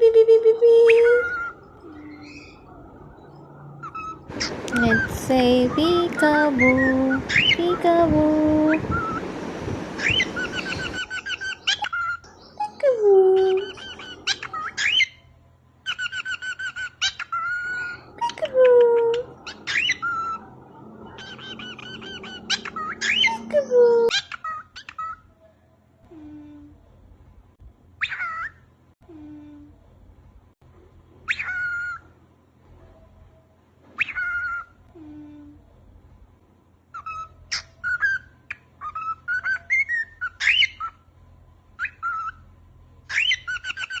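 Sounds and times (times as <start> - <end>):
cockatiel whistling: 8.7 - 9.2, 10.0 - 12.2
cockatiel chirping and whistling: 8.8 - 9.2, 10.0 - 12.2, 31.3 - 32.0, 34.0 - 34.7, 37.0 - 41.0, 41.8 - 42.4, 43.1 - 44.0.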